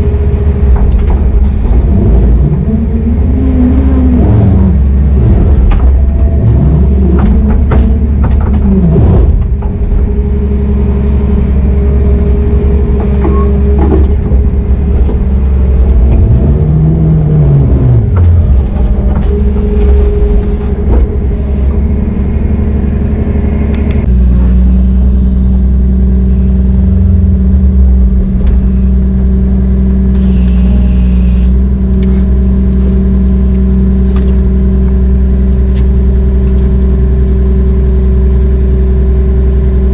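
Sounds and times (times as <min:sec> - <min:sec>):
heavy diesel machinery running: 0:00.0 - 0:39.9
machine whine: 0:00.0 - 0:39.9
clanks and knocks: 0:00.2 - 0:03.3, 0:04.7 - 0:10.7, 0:12.2 - 0:17.0, 0:17.6 - 0:21.8.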